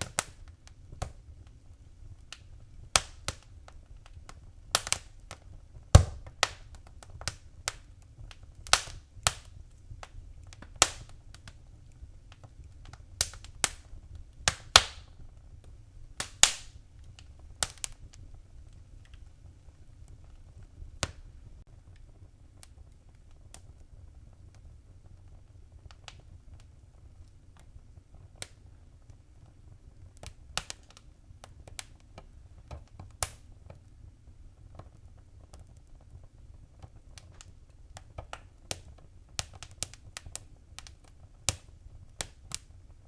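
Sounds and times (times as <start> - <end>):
wood fire crackling and popping: 0.0 - 43.0.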